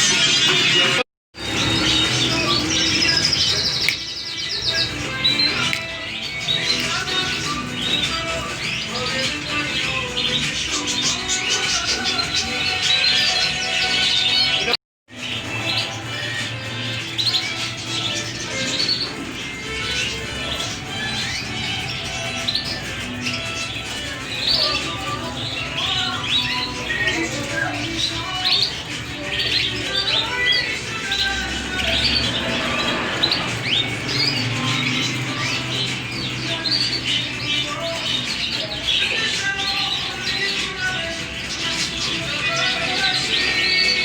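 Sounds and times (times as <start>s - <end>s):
background music: 0.0s - 44.0s
caged birds chirping and squawking: 0.0s - 44.0s.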